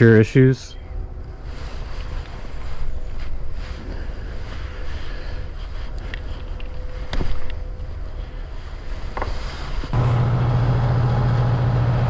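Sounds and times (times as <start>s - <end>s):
machine low hum: 9.8s - 12.0s.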